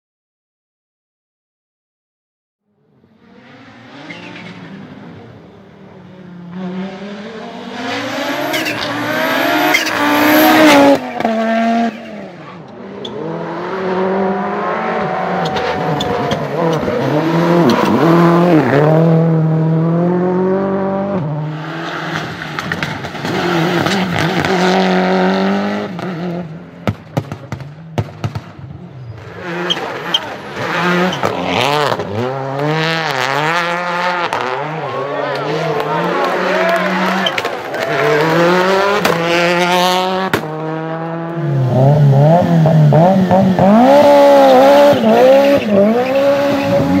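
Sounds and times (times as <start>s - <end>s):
rally car engines revving: 2.7s - 47.0s
sharp exhaust pops: 26.8s - 28.6s.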